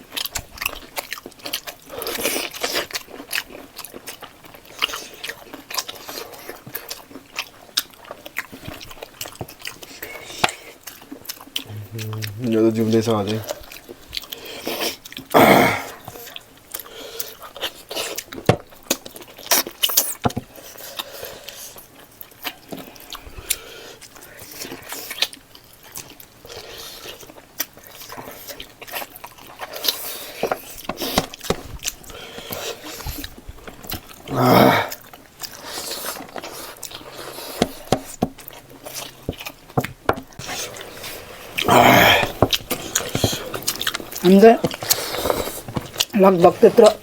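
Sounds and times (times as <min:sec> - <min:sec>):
person chewing food: 0:00.0 - 0:47.0
mouth clicks and smacks: 0:11.6 - 0:15.3.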